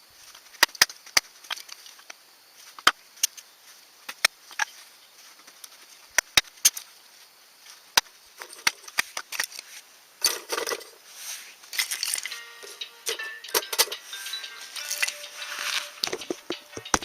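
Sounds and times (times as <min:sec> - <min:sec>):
campfire crackling and popping: 0:00.4 - 0:04.8, 0:05.4 - 0:06.9
rustling scraping handling noises: 0:08.4 - 0:17.0.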